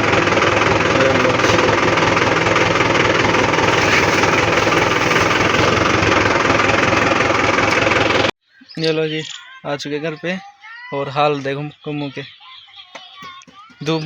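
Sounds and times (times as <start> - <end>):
tractor engine running: 0.0 - 8.3.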